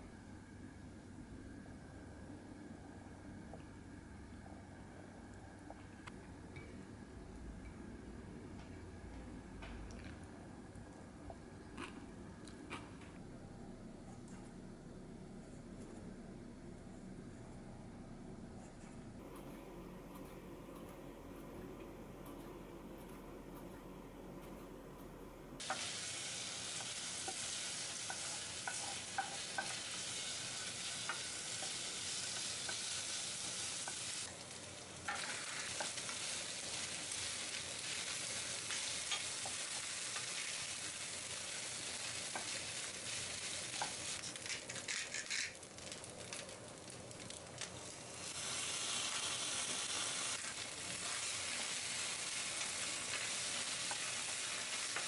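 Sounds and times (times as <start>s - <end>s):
food sizzling in a frying pan: 25.6s - 55.0s.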